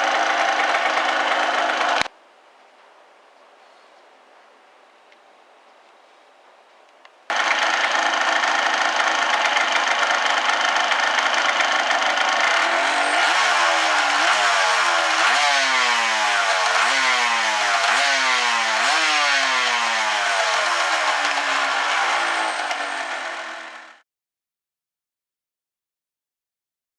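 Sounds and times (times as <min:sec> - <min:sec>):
two-stroke motorcycle engine revving: 0:00.0 - 0:02.1, 0:07.3 - 0:24.0.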